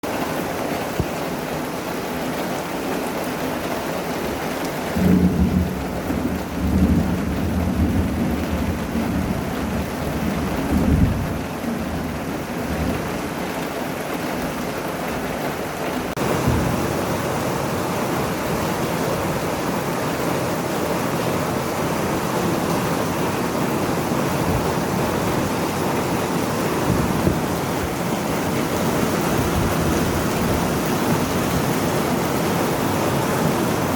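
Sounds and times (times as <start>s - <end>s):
heavy rain pouring: 0.0s - 33.9s
low rumble of thunder: 5.0s - 13.1s, 21.3s - 31.8s.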